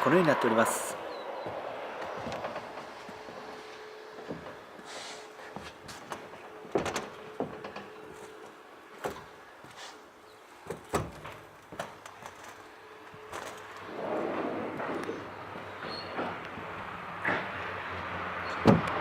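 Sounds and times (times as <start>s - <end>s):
rushing noise: 13.6s - 17.4s
knocks and clicks on truck body: 18.6s - 19.0s.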